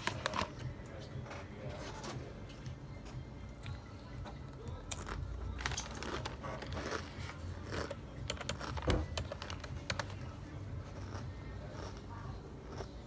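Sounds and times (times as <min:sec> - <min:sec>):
eating noises: 0:10.8 - 0:13.0.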